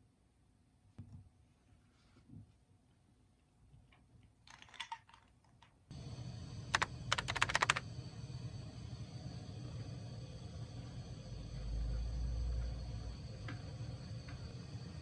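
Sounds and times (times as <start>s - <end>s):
steady low hum: 5.9s - 15.0s
sharp clicks: 6.7s - 7.8s.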